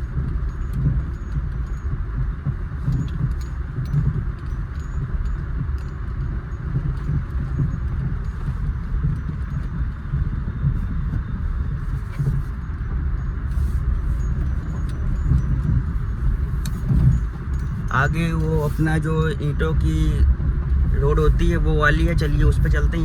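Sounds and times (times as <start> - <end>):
car body clicks and rattles: 0.0 - 19.7
low road and engine rumble: 0.0 - 23.0.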